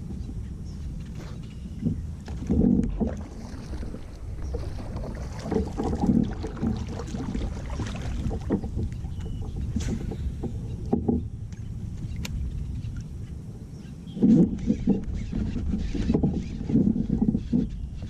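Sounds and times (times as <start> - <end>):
wind on microphone: 0.0 - 18.0
kayak knocking on water: 1.8 - 12.3.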